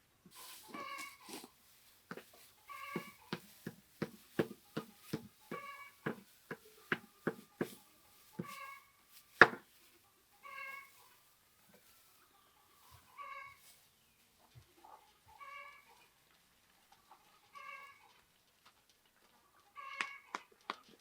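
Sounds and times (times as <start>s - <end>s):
quick knocks and thumps: 2.9s - 7.8s, 9.4s - 9.7s.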